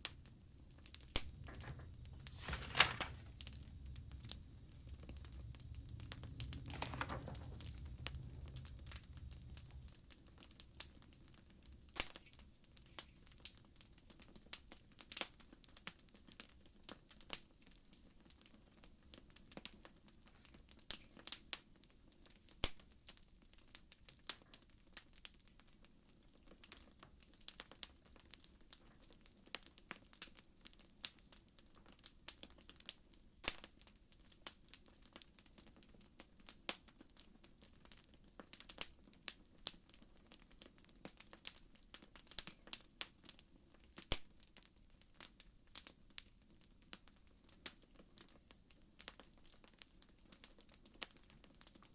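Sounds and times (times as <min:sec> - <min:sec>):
wood fire crackling: 0:00.0 - 0:51.9
low rumble: 0:03.0 - 0:10.2.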